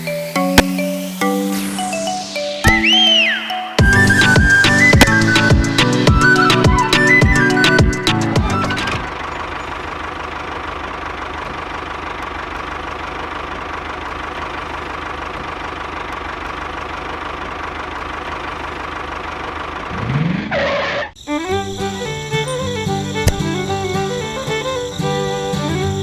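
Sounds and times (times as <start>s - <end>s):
pitch sweep: 0.0s - 9.2s
small engine running: 3.8s - 26.0s.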